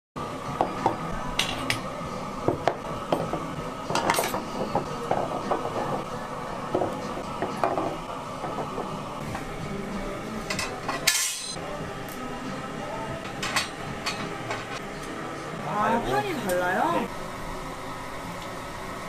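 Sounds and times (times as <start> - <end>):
steady background noise: 0.2 - 19.0
dishes and utensils clinking: 0.6 - 1.9, 2.5 - 6.1, 10.4 - 11.6, 13.2 - 14.9.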